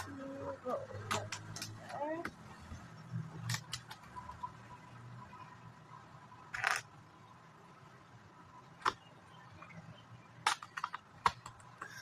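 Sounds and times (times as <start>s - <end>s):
plastic bricks clicking: 6.5s - 6.9s.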